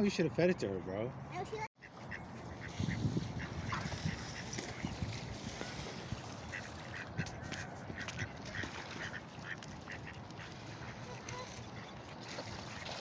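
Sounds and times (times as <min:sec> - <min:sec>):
waterfowl flock calling: 0:06.3 - 0:12.1.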